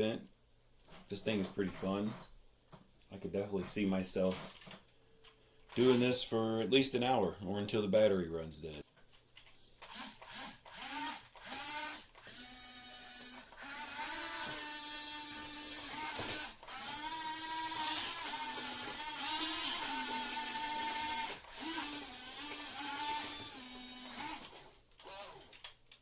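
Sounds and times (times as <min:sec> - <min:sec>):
small electric motors whining: 0:09.9 - 0:25.7.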